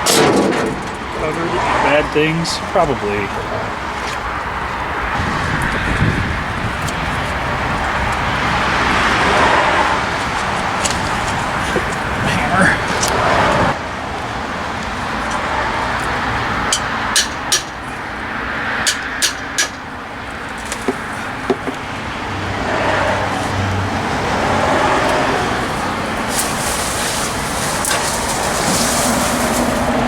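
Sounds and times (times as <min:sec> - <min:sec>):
hammer tapping metal: 0:16.7 - 0:17.8, 0:18.9 - 0:19.8.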